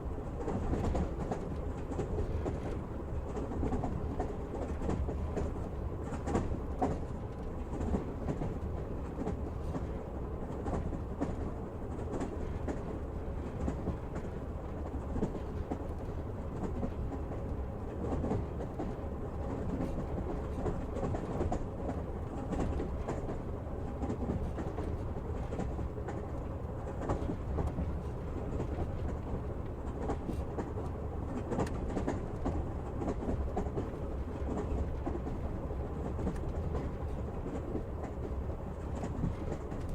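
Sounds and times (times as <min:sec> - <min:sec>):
train rumble inside carriage: 0:00.0 - 0:39.9.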